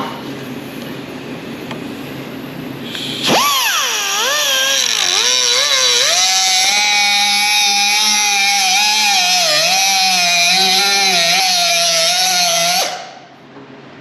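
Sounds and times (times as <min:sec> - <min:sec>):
power tool whining on sheet metal: 0:03.0 - 0:13.3.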